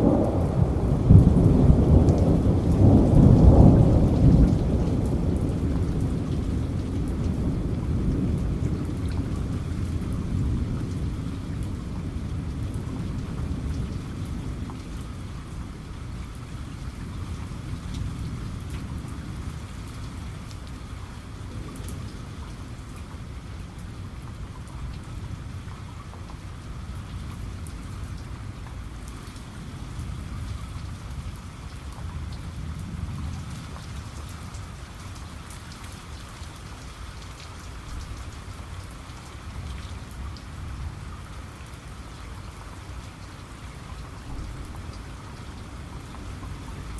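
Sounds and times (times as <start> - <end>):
thunder rumbling: 0.0 - 15.6
steady rain falling: 0.0 - 46.9.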